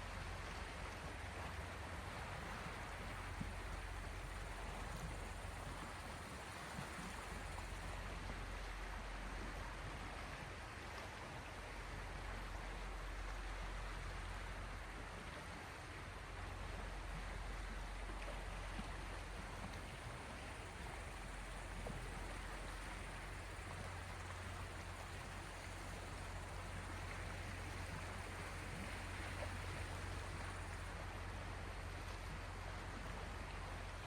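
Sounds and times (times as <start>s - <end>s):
sea waves washing: 2.0s - 8.0s, 19.2s - 30.9s.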